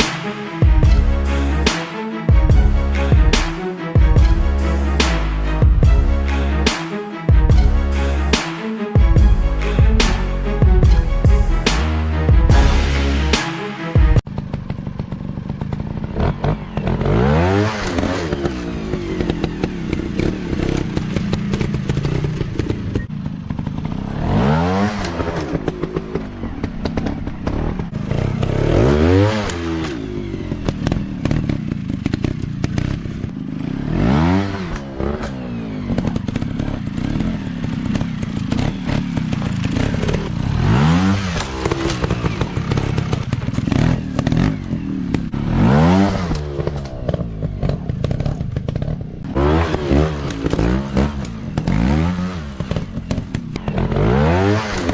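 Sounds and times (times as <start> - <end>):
steady engine note: 0.0 - 54.9
dirt bike engines revving: 14.3 - 54.9.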